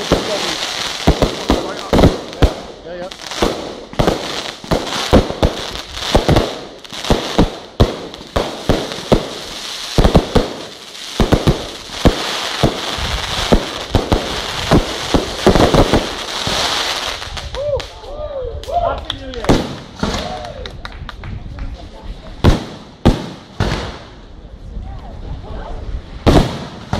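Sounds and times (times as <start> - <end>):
fireworks bangs: 0.0 - 17.6, 19.3 - 20.4, 22.4 - 24.2, 26.2 - 26.9
fireworks crackling: 0.0 - 18.0, 19.1 - 20.6, 21.3 - 24.3, 26.0 - 26.9.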